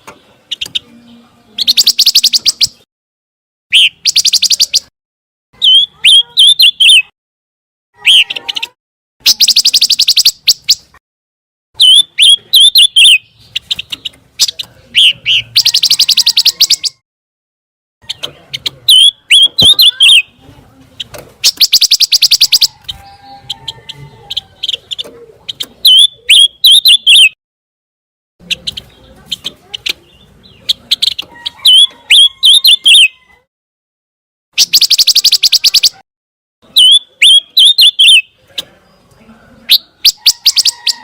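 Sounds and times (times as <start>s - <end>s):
songbird trills and whistles: 1.6s - 2.8s, 5.6s - 7.1s, 8.0s - 10.8s, 11.8s - 17.0s, 18.9s - 20.3s, 21.4s - 27.4s, 29.8s - 33.3s, 34.6s - 36.0s, 36.7s - 38.3s.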